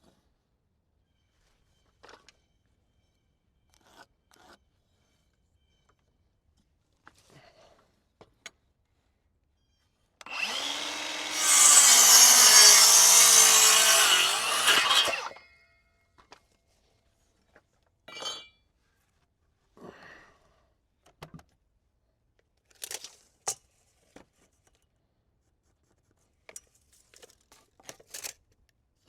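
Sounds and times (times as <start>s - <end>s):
power saw cutting wood: 10.2s - 15.4s.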